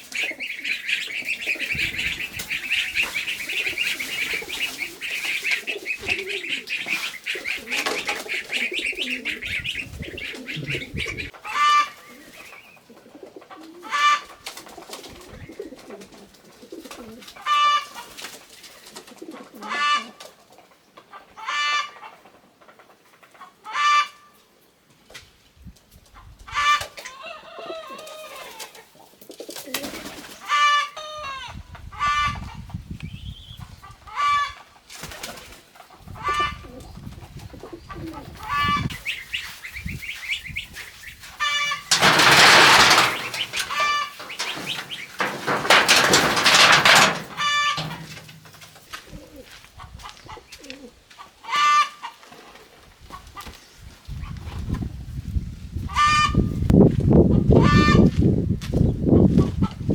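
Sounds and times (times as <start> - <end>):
farm birds calling: 0.0 - 24.5, 29.8 - 54.5, 55.8 - 56.6, 57.2 - 58.2
loud rustling burst: 41.6 - 48.8.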